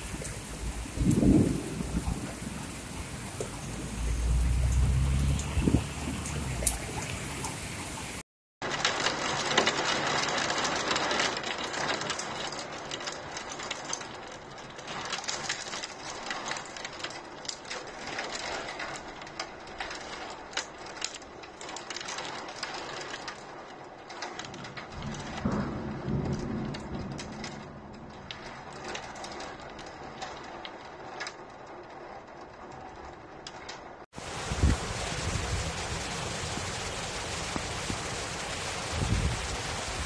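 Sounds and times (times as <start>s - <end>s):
thunder rumble: 0.0s - 8.2s, 24.4s - 31.1s, 34.2s - 40.0s
heavy rain: 0.0s - 40.0s
raindrop ticks: 0.0s - 40.0s.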